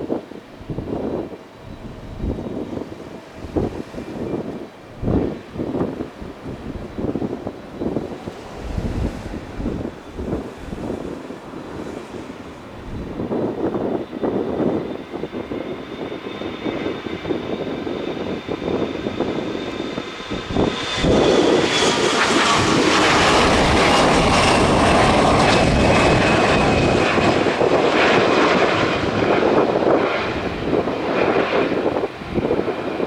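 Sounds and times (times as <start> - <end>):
jet engine whine: 0.0 - 33.0
jet noise rushing: 2.6 - 14.0.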